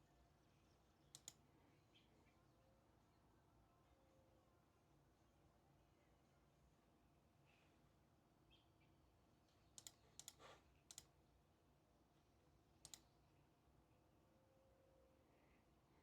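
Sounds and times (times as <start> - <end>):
faint sharp clicks: 1.1 - 1.4, 9.7 - 11.1, 12.8 - 13.1.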